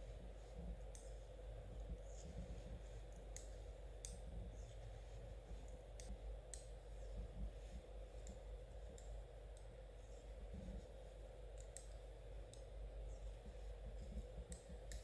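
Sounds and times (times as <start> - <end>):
low background hum: 0.0 - 15.0
knitting needles clicking: 11.6 - 12.7.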